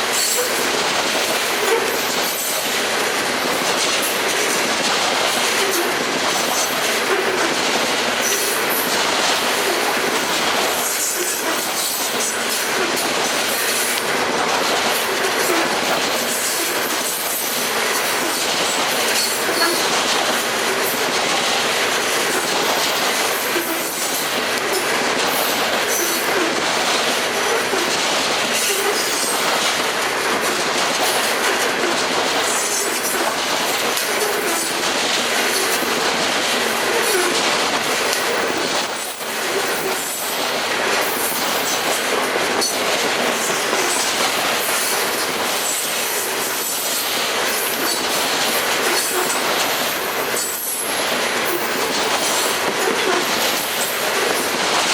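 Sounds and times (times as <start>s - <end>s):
train wheels clattering on rail joints: 0.0s - 54.9s
train wheel squeal: 0.1s - 2.8s, 8.2s - 8.9s, 15.2s - 20.0s, 22.3s - 26.6s, 28.5s - 29.6s, 43.4s - 54.0s.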